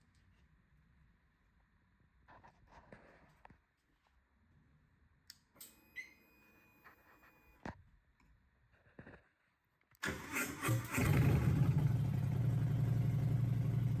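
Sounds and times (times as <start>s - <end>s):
fuel pump whirring: 10.0s - 14.0s.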